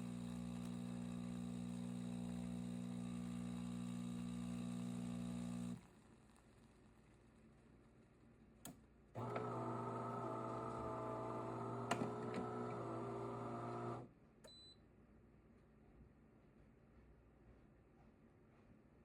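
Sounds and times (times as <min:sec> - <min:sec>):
espresso machine humming: 0:00.0 - 0:05.9, 0:09.2 - 0:14.1.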